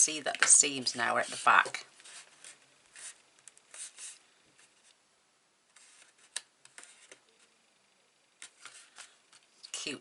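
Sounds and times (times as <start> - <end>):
card stock rustling and scraping: 0.8 - 5.0, 5.7 - 7.6, 8.4 - 9.5.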